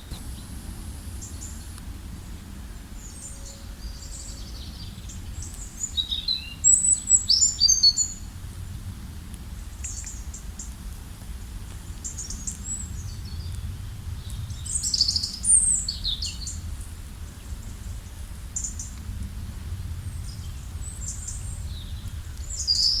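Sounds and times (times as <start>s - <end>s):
songbirds chirping: 0.0s - 8.4s, 9.6s - 10.8s, 11.9s - 23.0s
low background rumble: 6.9s - 23.0s.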